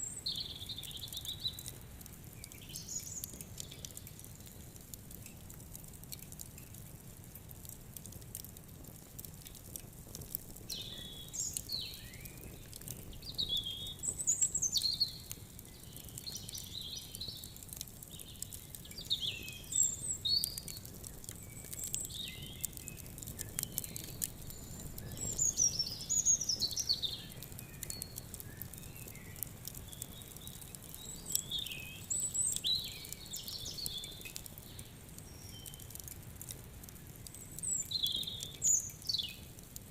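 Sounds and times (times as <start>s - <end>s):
birds singing and calling: 0.0s - 1.7s, 2.4s - 4.2s, 10.7s - 36.0s, 37.3s - 39.5s
wood fire crackling and popping: 0.0s - 39.9s.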